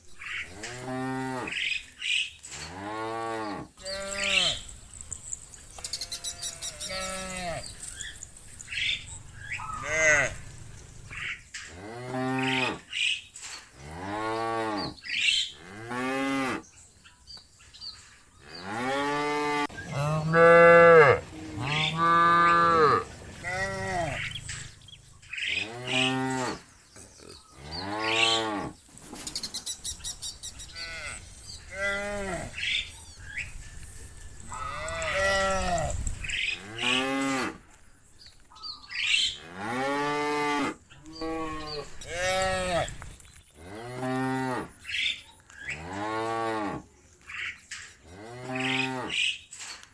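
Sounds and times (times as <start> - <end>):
cows mooing: 0.5 - 1.6, 2.6 - 12.8, 18.4 - 28.8, 30.6 - 32.9, 34.4 - 37.6, 39.3 - 43.0, 43.6 - 44.8, 48.1 - 49.3.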